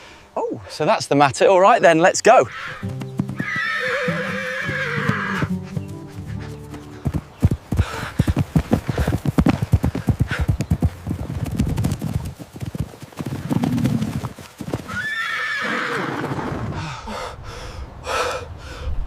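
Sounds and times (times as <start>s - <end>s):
horse whinnying: 2.4s - 5.5s, 14.9s - 16.7s
horse hooves clip-clopping: 2.6s - 15.4s.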